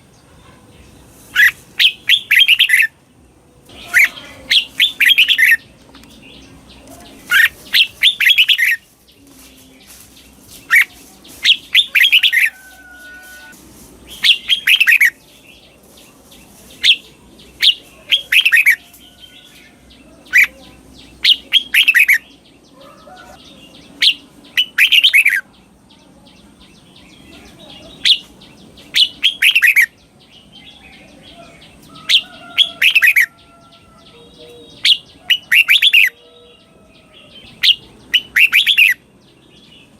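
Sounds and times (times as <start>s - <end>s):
bulbul singing quick phrases: 0.0s - 3.1s, 3.7s - 18.8s, 23.5s - 31.8s, 37.4s - 39.1s.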